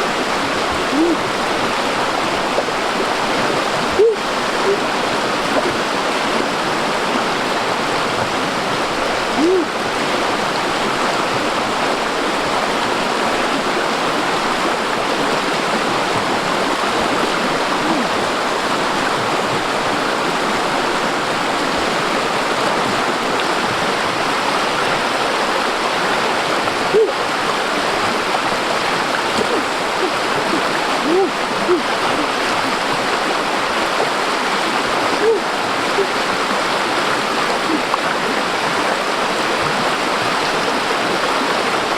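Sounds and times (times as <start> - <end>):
stream flowing: 0.0 - 41.9
watery plops: 28.9 - 32.7.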